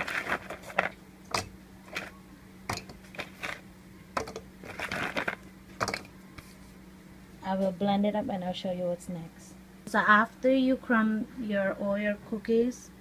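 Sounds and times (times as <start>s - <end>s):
rustling: 0.0s - 1.0s, 1.9s - 3.6s, 4.2s - 6.7s
faint steady hum: 0.0s - 13.0s
cookies knocking in blender jar: 2.7s - 3.6s, 4.2s - 6.1s.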